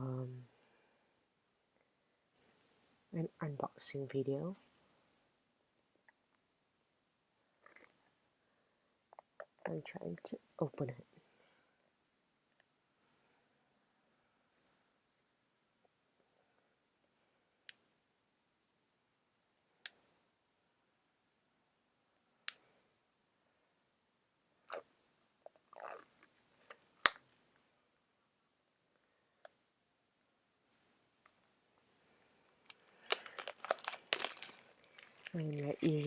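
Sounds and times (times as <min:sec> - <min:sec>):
packaging clicks and snaps: 0:26.7 - 0:27.4, 0:32.7 - 0:36.0
packaging crinkling: 0:31.2 - 0:36.0
packaging rustling: 0:32.6 - 0:36.0.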